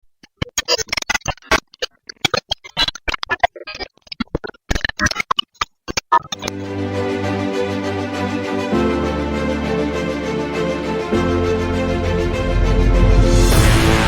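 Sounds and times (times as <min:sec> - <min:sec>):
sustained synthesizer chord: 0:06.5 - 0:14.0.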